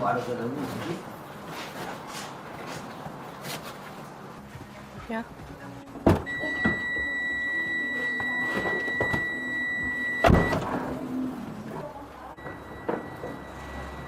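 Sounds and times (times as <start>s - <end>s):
high-pitched electronic warning tone: 6.3s - 10.6s, 12.4s - 14.0s.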